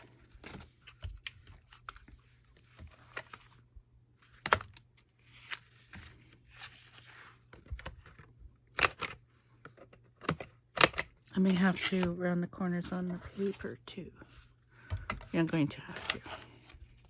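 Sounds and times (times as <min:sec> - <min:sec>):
paper and card rustling: 0:00.0 - 0:08.2, 0:11.4 - 0:14.6, 0:15.2 - 0:17.0.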